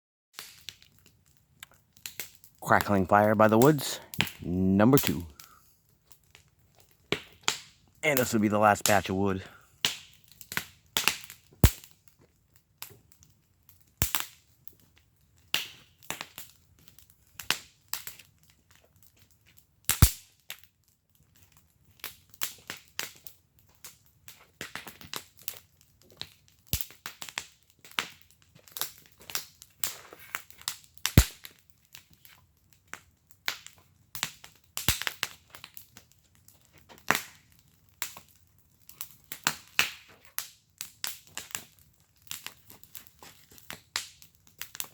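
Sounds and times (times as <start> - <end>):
wood fire crackling: 0.4 - 44.9
sharp fire pops: 3.6 - 5.6, 6.8 - 12.1, 14.0 - 14.4, 15.5 - 16.5, 19.9 - 20.6, 26.2 - 31.6, 32.9 - 35.8, 37.0 - 37.4, 39.0 - 42.8.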